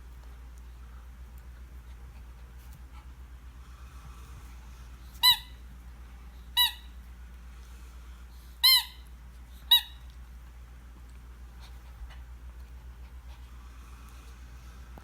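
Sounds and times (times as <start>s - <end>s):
small dog squeaking: 5.2s - 5.6s.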